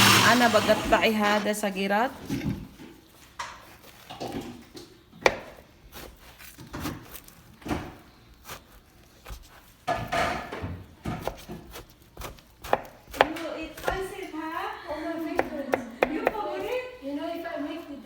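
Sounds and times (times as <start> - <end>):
knife chopping on board: 5.2 - 14.2, 15.3 - 16.8.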